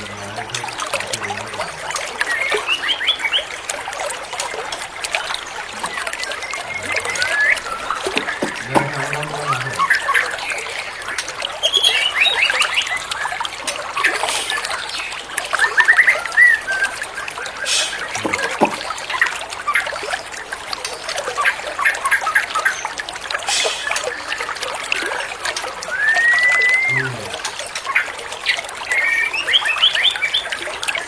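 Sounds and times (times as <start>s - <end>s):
trickling water: 0.0s - 31.0s
bird singing whistled phrases: 2.2s - 3.5s, 5.8s - 13.4s, 14.0s - 18.6s, 25.8s - 30.5s.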